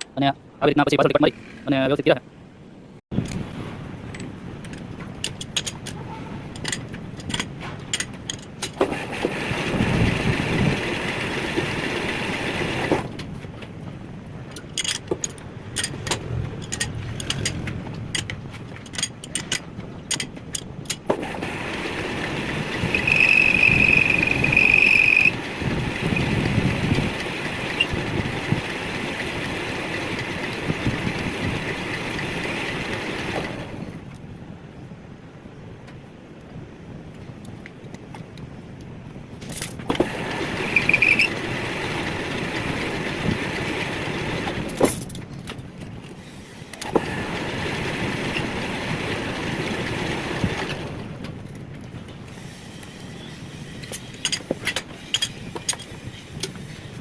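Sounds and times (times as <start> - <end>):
metalworking machine running: 21.3 - 30.6
loud high squeal: 22.9 - 25.4, 40.7 - 41.3
sharp metallic clicks: 22.9 - 25.4.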